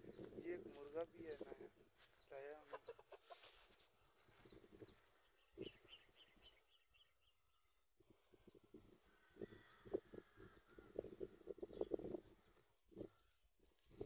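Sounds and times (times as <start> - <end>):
bird chirps: 2.0 - 8.6.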